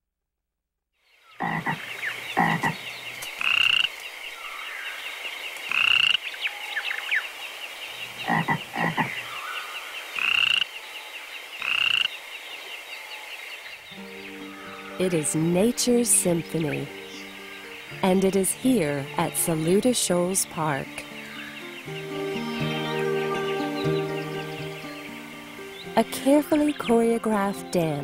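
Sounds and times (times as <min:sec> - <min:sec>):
frogs croaking: 0:01.0 - 0:26.9
high-pitched trilling chorus: 0:21.4 - 0:26.0.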